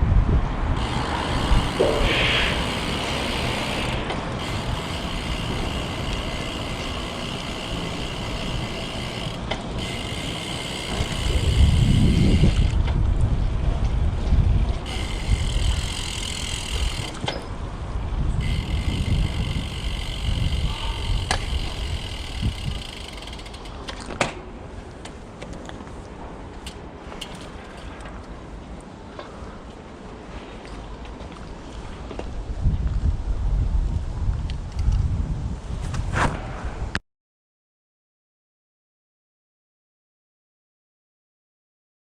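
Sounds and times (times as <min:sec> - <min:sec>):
low rumble of passing traffic: 0:00.0 - 0:34.7
bicycle tyres on road: 0:00.0 - 0:37.0
wind noise: 0:00.0 - 0:37.0
freehub ratcheting buzz: 0:00.8 - 0:12.9, 0:14.6 - 0:24.0.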